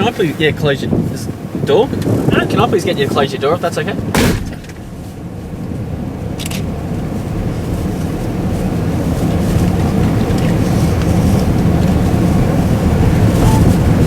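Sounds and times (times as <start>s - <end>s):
engine and road rumble: 0.0s - 14.0s
vehicle door shutting: 13.2s - 14.0s.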